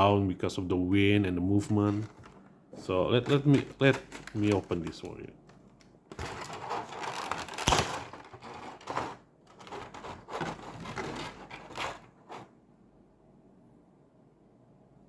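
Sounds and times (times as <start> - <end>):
plastic packaging crackling: 1.6 - 12.5.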